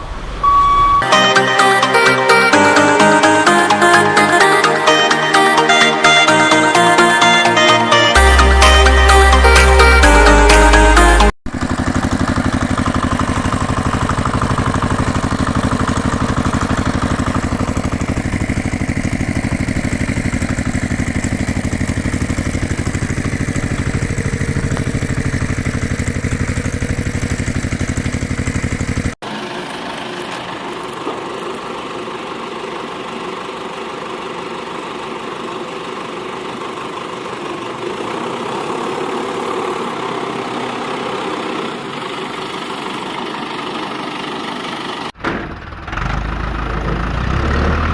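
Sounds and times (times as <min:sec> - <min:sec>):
motor running: 0:11.5 - 0:29.2.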